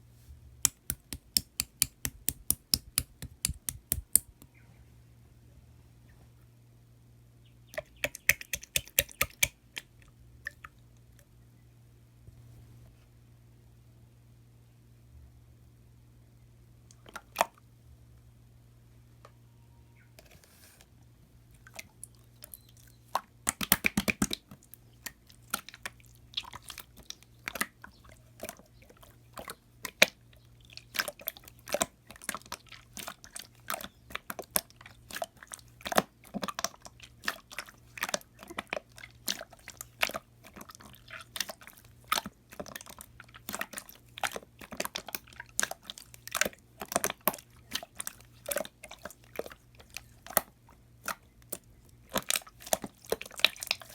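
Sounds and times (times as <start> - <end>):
slime clicking and popping: 0.6 - 4.5, 7.8 - 9.9, 23.4 - 24.4.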